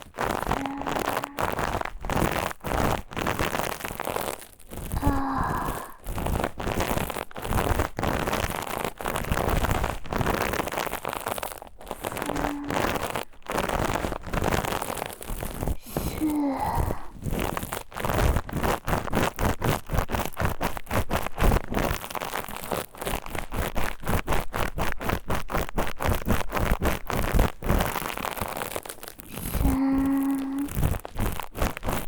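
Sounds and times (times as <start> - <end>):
scratching on microphone: 0.0 - 32.0.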